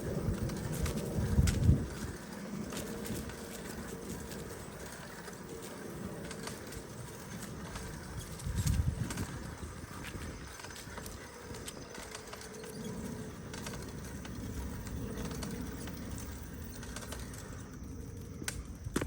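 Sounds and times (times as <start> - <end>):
wind on microphone: 0.0 - 5.5, 7.2 - 12.1
bicycle clicks and rattles: 0.0 - 19.0
bicycle rolling on dirt: 0.0 - 19.0.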